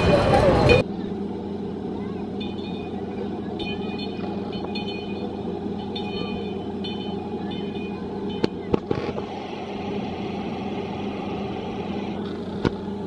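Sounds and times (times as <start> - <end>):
miniature train rumbling on track: 0.0 - 13.0
high-pitched ringing tone: 2.3 - 9.0.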